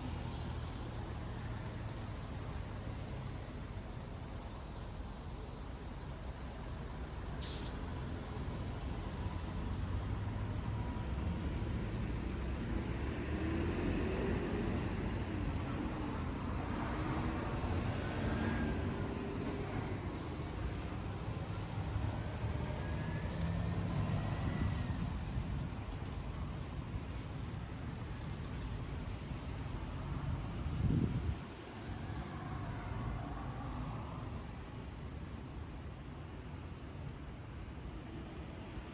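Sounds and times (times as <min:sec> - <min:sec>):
highway traffic passing: 0:06.9 - 0:35.1.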